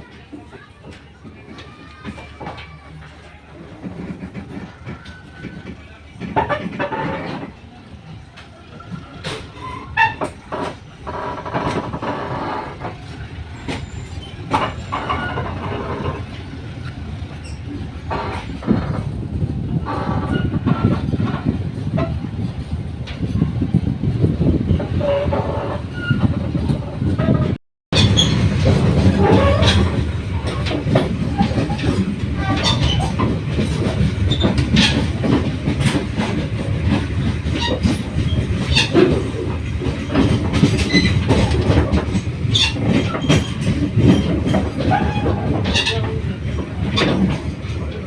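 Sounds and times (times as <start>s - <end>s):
train rumbling: 0.0s - 48.0s
wheels clacking over rail joints: 0.0s - 48.0s
faint wheel squeal: 8.8s - 12.9s, 13.6s - 16.2s.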